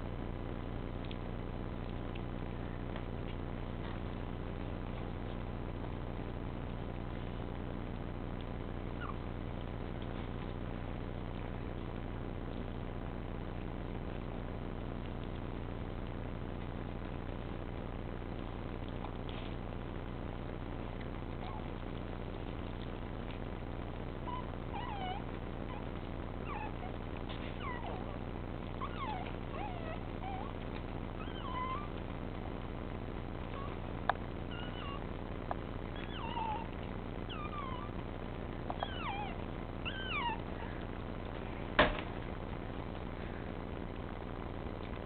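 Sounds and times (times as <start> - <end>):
steady low hum: 0.0 - 45.0
puppies whimpering and squeaking: 8.9 - 9.3, 21.4 - 21.8, 24.2 - 32.1, 33.4 - 33.8, 34.5 - 35.1, 35.9 - 38.0, 38.7 - 40.9.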